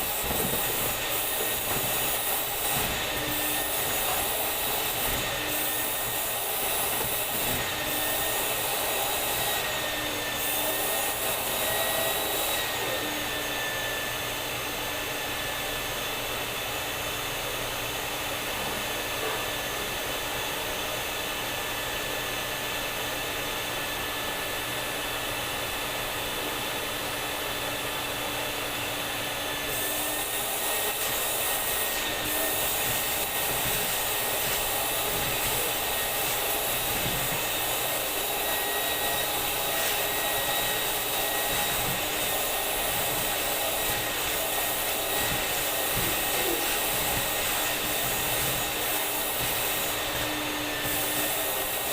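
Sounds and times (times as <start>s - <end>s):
vacuum cleaner running: 0.0s - 51.9s.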